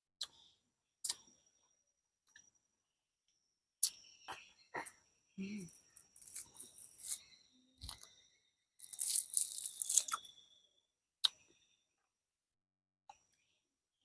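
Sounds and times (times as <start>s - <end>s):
fruit peeling and crunching: 5.4s - 8.1s, 8.8s - 10.4s.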